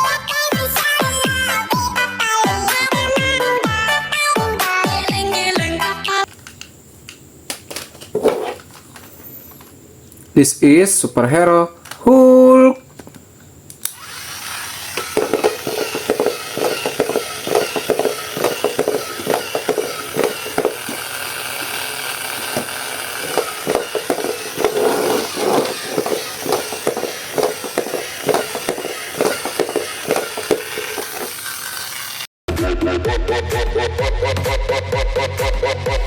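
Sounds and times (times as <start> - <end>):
plastic packaging rustling: 15.0 - 31.4.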